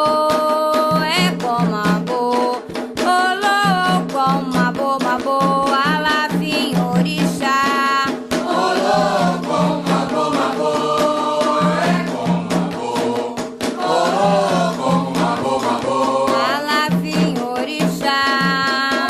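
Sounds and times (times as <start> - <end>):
person singing: 0.0 - 9.0, 13.8 - 19.0
drums and percussion: 0.0 - 19.0.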